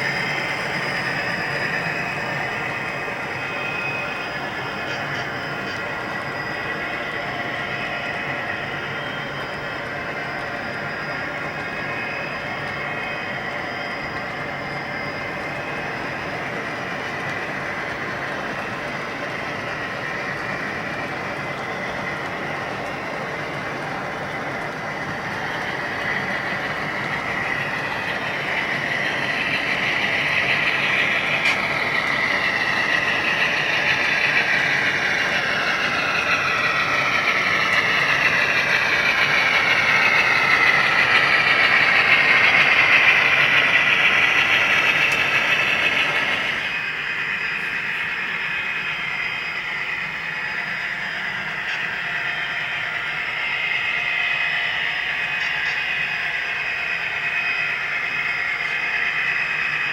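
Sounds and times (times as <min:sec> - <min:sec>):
model train whirring: 0:00.0 - 0:59.9.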